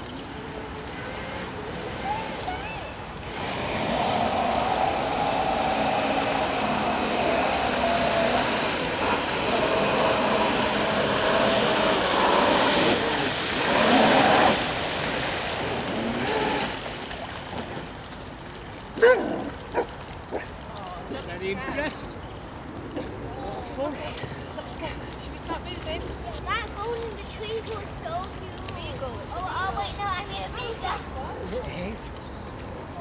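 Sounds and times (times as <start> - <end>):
motor whine: 0.2 - 16.9
water rushing from jet: 0.2 - 20.7.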